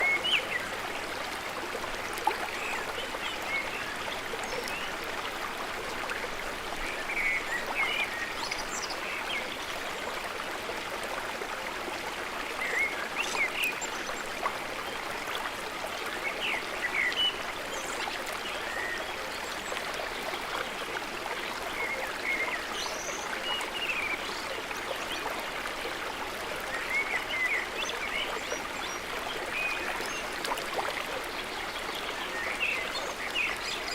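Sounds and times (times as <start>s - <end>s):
stream water rushing: 0.0s - 33.9s.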